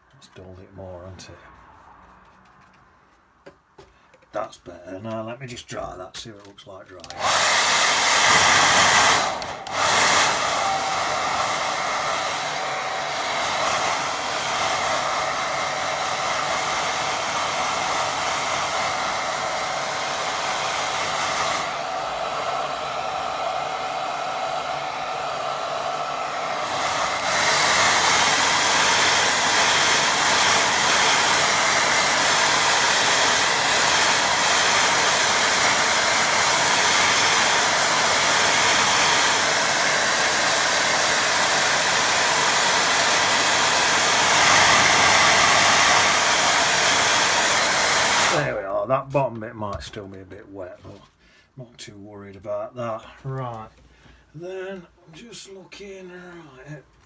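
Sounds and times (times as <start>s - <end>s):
hair dryer blowing: 7.0s - 48.7s.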